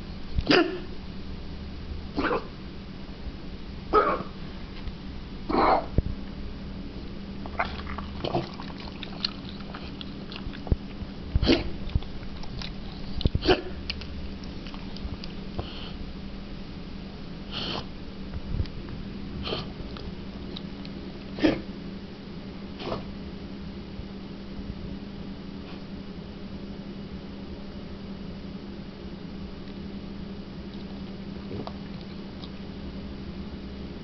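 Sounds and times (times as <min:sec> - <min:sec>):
dog snorting breaths: 0:15.5 - 0:16.0, 0:17.5 - 0:18.0, 0:19.4 - 0:19.8, 0:22.8 - 0:23.1.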